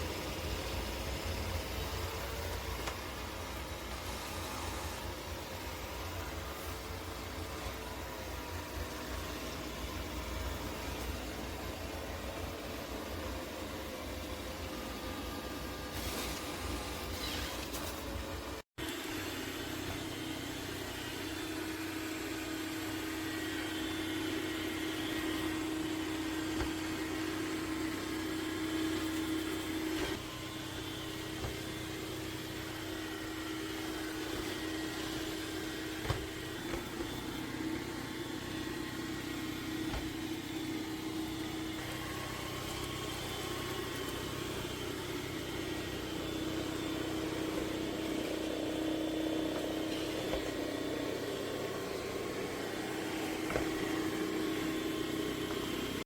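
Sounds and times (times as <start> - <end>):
robot vacuum motor humming: 0.0 - 56.0.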